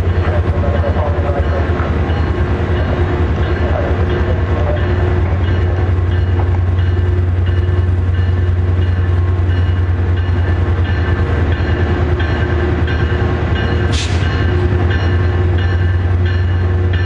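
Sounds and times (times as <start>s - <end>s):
locomotive rumbling: 0.0s - 17.0s
air hissing: 13.9s - 14.3s.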